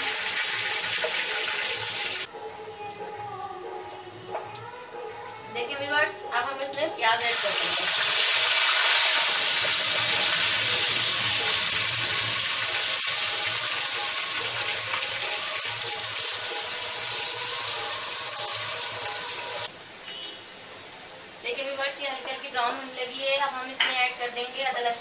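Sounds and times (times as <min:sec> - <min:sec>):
onions sizzling in hot oil: 0:00.0 - 0:02.3, 0:06.6 - 0:19.7.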